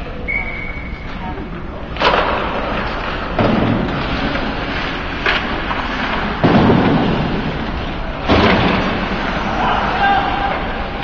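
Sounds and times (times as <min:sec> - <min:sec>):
steady rink noise: 0:00.0 - 0:11.0
booming bangs against rink boards: 0:02.0 - 0:04.5, 0:05.2 - 0:07.6, 0:08.2 - 0:09.9.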